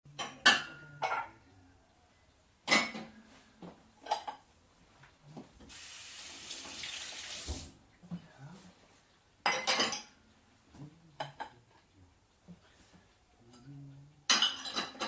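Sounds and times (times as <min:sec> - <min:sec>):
dishes and utensils clattering: 0:00.2 - 0:01.3, 0:02.6 - 0:03.3, 0:04.0 - 0:04.4, 0:09.4 - 0:10.2, 0:14.3 - 0:15.0
tap running into sink: 0:05.6 - 0:07.8.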